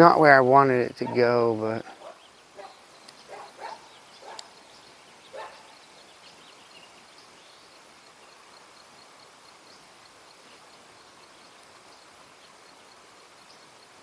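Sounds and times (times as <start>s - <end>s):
faint bark-like animal calls: 1.0s - 4.6s, 5.3s - 5.8s.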